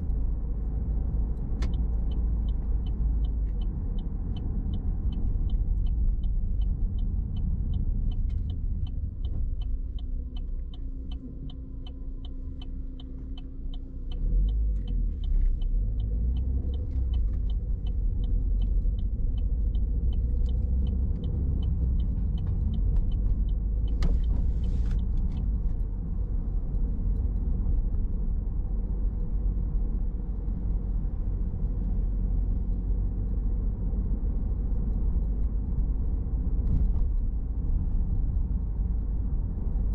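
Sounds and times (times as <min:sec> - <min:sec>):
car engine and road rumble: 0:00.0 - 0:39.9
regular ticking: 0:01.1 - 0:30.9.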